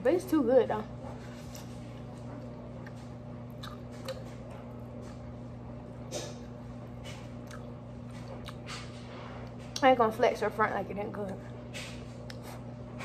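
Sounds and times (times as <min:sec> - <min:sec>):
steady low hum: 0:00.0 - 0:13.0
chewing and mouth smacks: 0:01.4 - 0:05.3, 0:06.1 - 0:09.9, 0:11.9 - 0:12.6.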